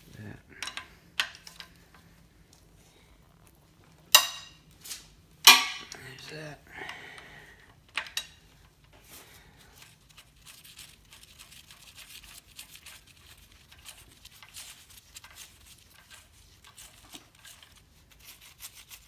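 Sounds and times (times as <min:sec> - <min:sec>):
hand tools and metal parts clicking: 0:00.6 - 0:02.1, 0:04.1 - 0:07.0, 0:07.8 - 0:09.0.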